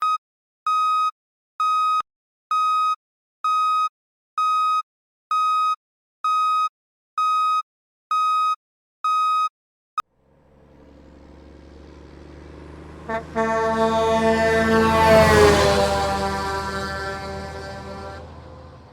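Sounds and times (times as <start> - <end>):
low rumble: 10.2 - 15.3.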